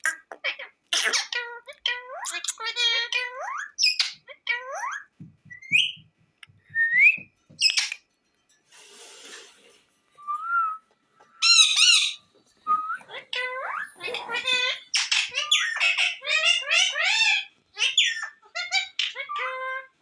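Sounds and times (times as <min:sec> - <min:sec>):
parrot whistling and calling: 0:11.4 - 0:19.9.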